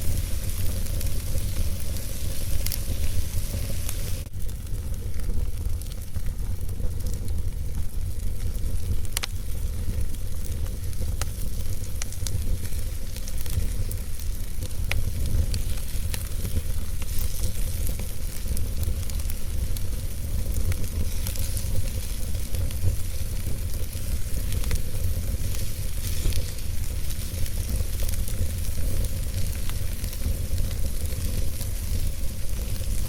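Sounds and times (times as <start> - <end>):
fire popping and snapping: 0.0 - 33.0
wood fire crackling: 0.0 - 33.0.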